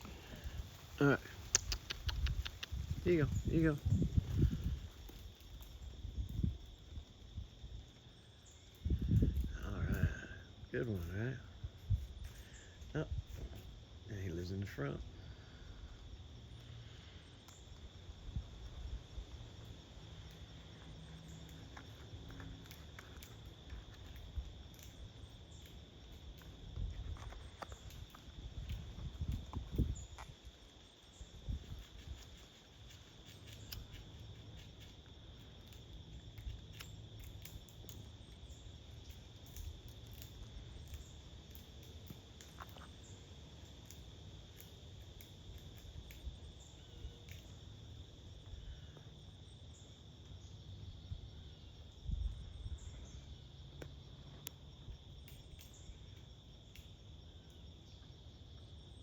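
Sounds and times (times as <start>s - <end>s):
insects singing: 0.0s - 59.0s
light ticks: 1.4s - 3.0s.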